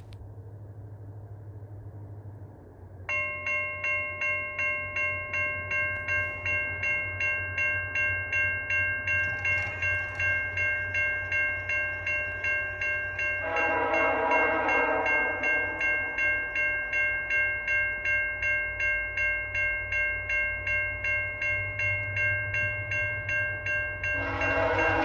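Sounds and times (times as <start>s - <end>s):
level crossing warning bell: 3.1s - 25.0s
train horn: 13.1s - 16.8s, 24.0s - 25.0s.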